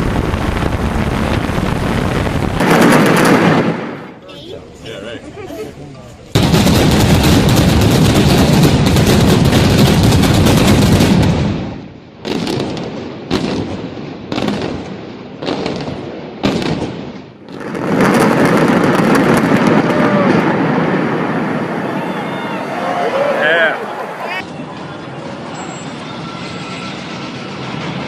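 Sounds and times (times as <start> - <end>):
heavy rumble: 0.0 - 3.1, 19.1 - 24.4
rapid crackle of detonations: 0.0 - 4.2, 6.3 - 22.1
sharp explosive blasts: 0.0 - 4.2, 6.4 - 23.7.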